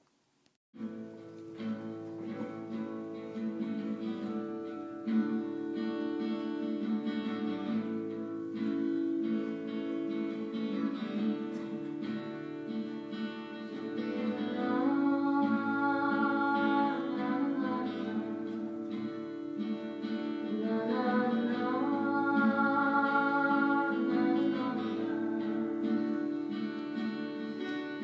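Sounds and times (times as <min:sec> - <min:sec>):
acoustic guitar strumming: 0:00.8 - 0:28.0
person singing: 0:08.6 - 0:28.0.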